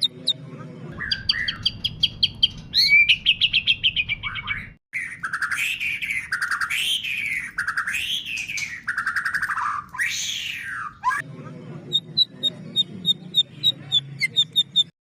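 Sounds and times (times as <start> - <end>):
bird singing: 0.0 - 11.3.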